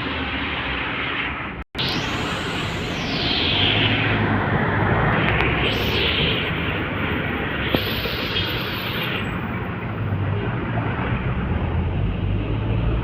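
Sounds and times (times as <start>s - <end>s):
truck engine drone: 0.0s - 13.0s
sharp click: 5.1s - 6.8s, 7.6s - 9.4s.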